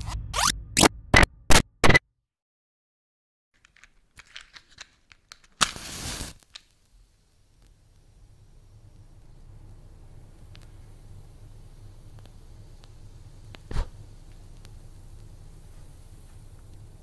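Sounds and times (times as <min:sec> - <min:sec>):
sharp loud clicks: 0:00.0 - 0:02.0
faint crackling: 0:03.6 - 0:17.0
match struck and flaring: 0:04.2 - 0:17.0.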